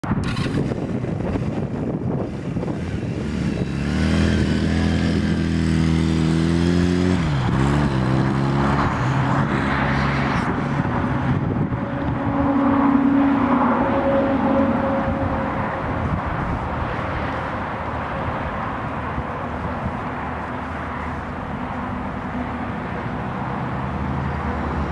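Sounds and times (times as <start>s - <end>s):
motorcycle engine running: 0.2s - 9.4s.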